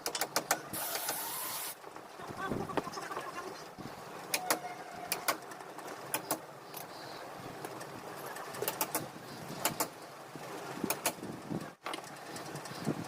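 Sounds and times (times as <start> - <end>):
sharp clicks and knocks: 0.0 - 1.2, 4.3 - 6.9, 7.6 - 10.0, 10.8 - 13.0.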